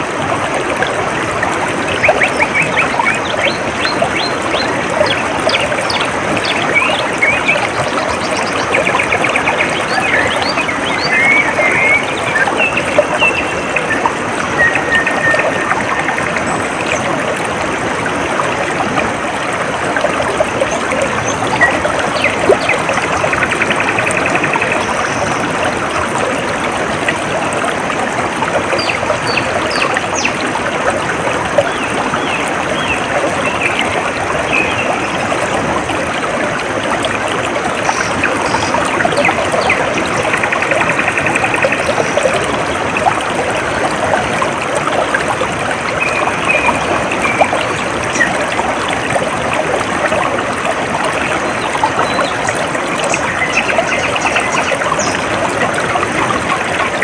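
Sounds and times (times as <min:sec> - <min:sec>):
stream trickling and babbling: 0:00.0 - 0:57.0
birds chirping: 0:01.8 - 0:17.0.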